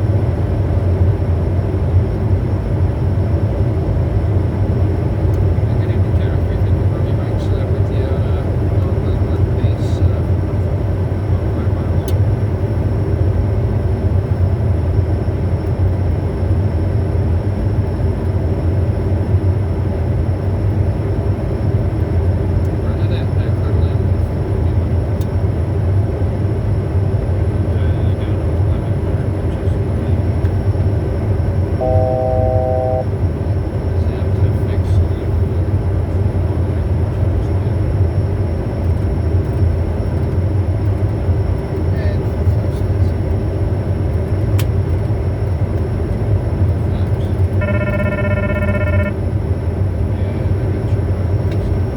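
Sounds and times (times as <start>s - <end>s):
airflow rumble in aircraft cabin: 0.0s - 51.9s
jet engine hum: 26.2s - 41.8s
faint high whine: 31.8s - 33.1s, 47.6s - 49.2s
faint high-pitched whine: 31.8s - 33.1s.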